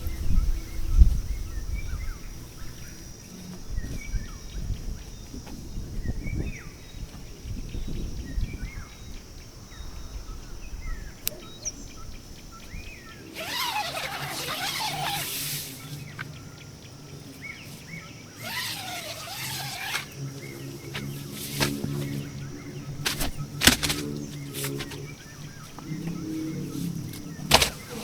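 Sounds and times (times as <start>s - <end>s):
wind rumbling on microphone: 0.0s - 16.1s
high insect drone: 0.0s - 28.0s
small birds chirping: 0.0s - 28.0s
noisy bursts of calling: 13.2s - 16.0s, 18.4s - 21.7s.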